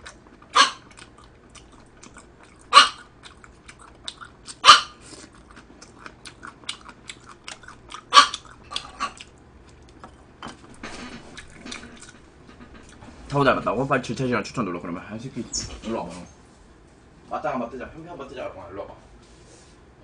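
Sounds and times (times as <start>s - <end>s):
chewing and lip-smacking: 0.0s - 13.0s.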